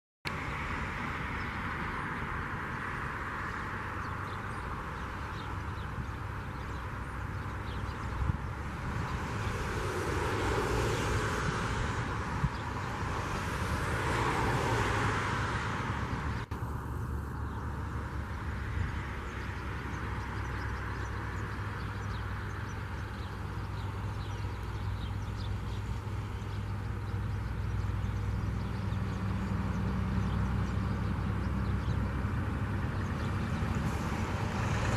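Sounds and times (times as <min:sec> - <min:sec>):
broad rushing noise: 0:00.3 - 0:21.6, 0:32.2 - 0:34.9
diesel locomotive drone: 0:15.6 - 0:34.9.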